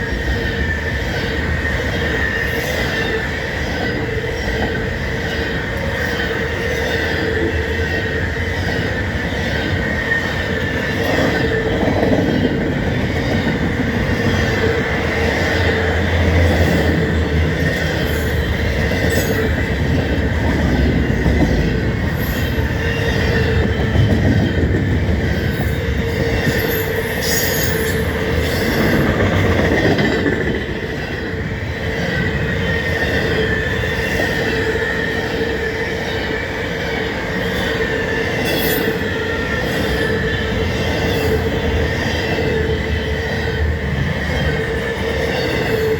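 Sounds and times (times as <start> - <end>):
train wheels rumbling on rails: 0.0 - 45.9
high-pitched wheel squeal: 25.4 - 29.1.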